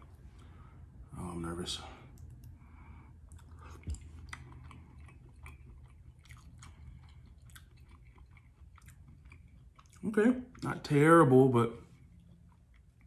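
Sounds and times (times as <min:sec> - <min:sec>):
person chewing: 0:02.1 - 0:10.8, 0:11.8 - 0:13.0.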